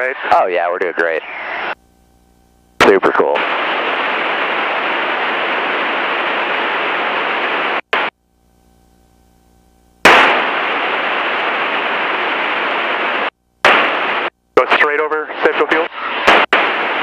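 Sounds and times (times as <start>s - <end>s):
radio static hiss: 0.0s - 17.0s
sharp pop: 10.0s - 10.6s, 13.6s - 14.1s, 16.2s - 16.7s.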